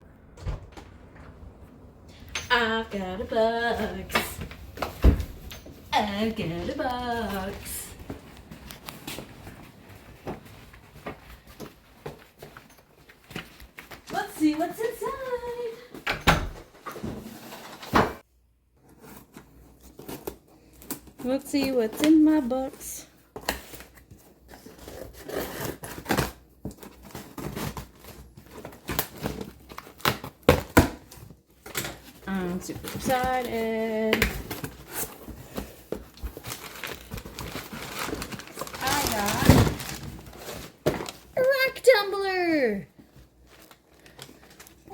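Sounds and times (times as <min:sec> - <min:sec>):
packaging scraping and tearing: 0:23.6 - 0:30.4, 0:34.5 - 0:41.2.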